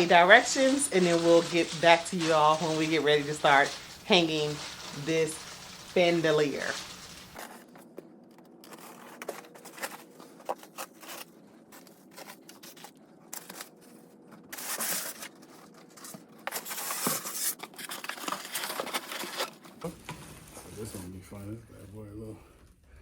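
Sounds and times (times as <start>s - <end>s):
rustling: 0.0s - 7.6s, 16.8s - 21.1s.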